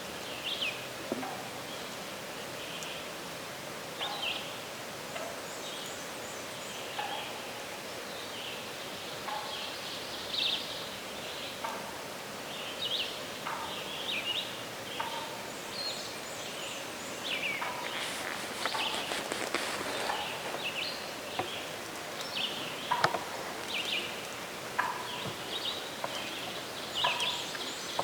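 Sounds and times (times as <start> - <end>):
outdoor background hiss: 0.0 - 28.0
rustling: 17.4 - 24.9.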